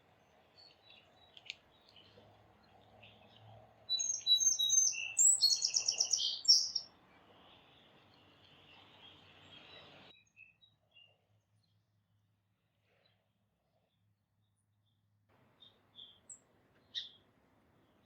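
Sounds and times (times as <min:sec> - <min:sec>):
faint outdoor background noise: 0:00.0 - 0:18.0
songbird singing with buzzy trill: 0:00.2 - 0:11.8, 0:15.6 - 0:17.3.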